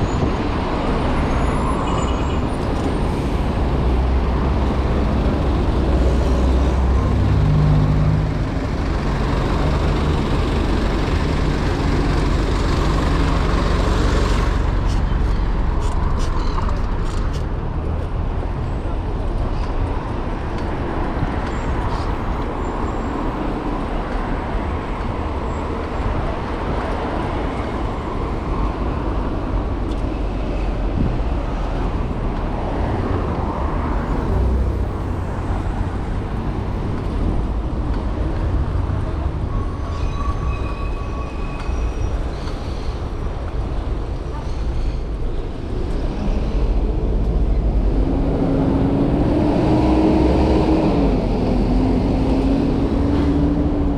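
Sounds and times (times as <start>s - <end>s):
road vehicles passing: 0.0s - 53.9s
wind rumble on microphone: 23.2s - 40.6s.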